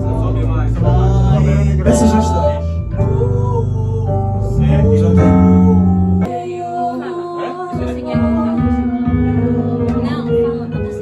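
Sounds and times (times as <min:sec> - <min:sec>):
band playing chords: 0:00.0 - 0:06.3
person singing: 0:00.0 - 0:11.0.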